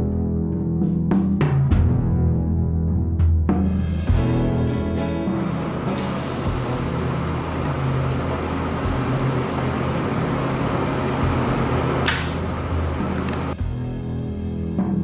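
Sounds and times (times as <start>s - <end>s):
machine running with rushing noise: 4.2s - 13.6s
short sharp hiss: 5.4s - 11.3s.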